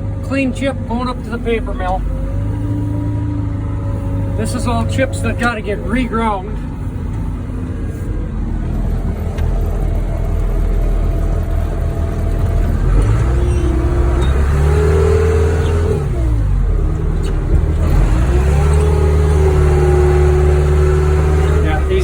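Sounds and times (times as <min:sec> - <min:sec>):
diesel engine revving: 0:00.0 - 0:22.0.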